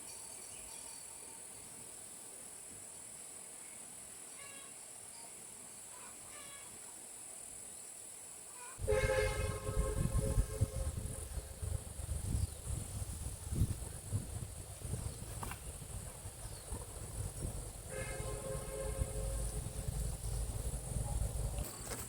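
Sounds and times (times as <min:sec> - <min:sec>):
long horn-like call: 0:08.6 - 0:11.8, 0:17.9 - 0:20.0
low rumbling noise: 0:08.8 - 0:22.0.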